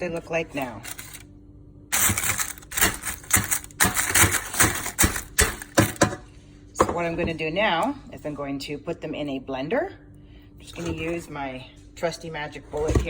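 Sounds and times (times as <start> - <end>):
eggshells rattling and crackling: 1.9 - 5.9.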